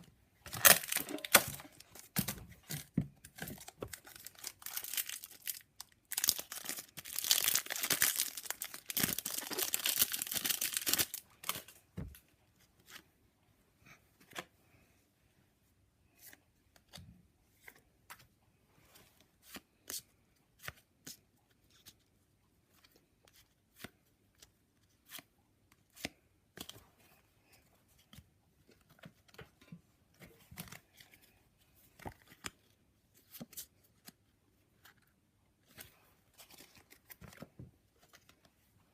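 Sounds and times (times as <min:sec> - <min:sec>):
card pack wrapper tearing: 0:00.5 - 0:01.7, 0:04.0 - 0:11.6
cards being handled: 0:34.8 - 0:38.6.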